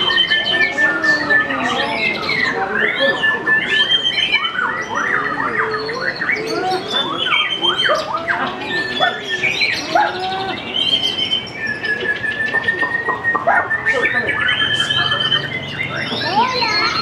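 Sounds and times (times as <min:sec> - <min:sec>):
songbird whistling song: 0:00.0 - 0:17.0.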